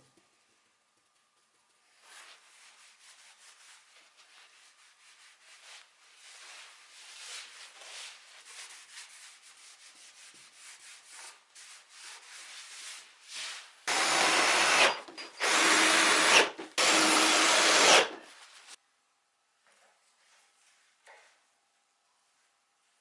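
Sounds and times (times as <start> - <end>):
hand sanding on wood: 2.2 - 13.1.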